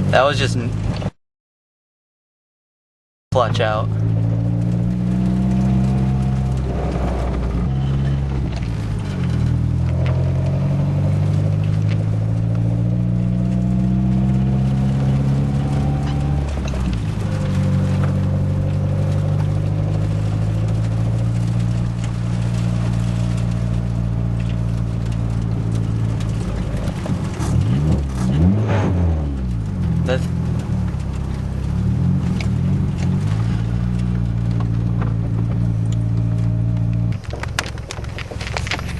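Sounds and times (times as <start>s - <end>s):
car engine accelerating through gears: 3.6s - 38.9s.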